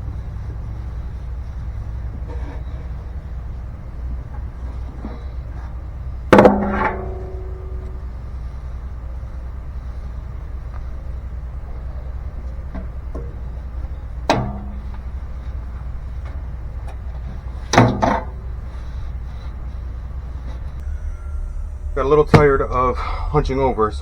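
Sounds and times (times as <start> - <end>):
low rumble: 7.0 - 12.7, 18.4 - 24.0.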